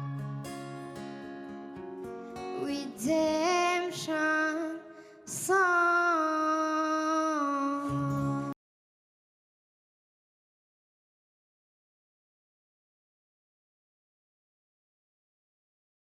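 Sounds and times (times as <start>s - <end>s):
plucked acoustic guitar: 0.0s - 8.6s
woman singing: 2.5s - 8.6s.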